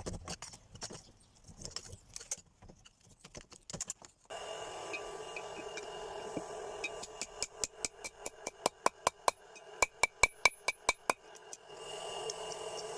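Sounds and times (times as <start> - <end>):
steady hum with high tones: 4.3 - 12.9.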